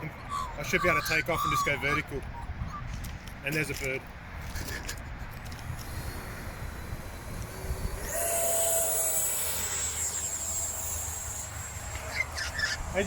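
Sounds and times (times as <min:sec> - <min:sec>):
electric ducted fan whine: 0:05.3 - 0:13.0.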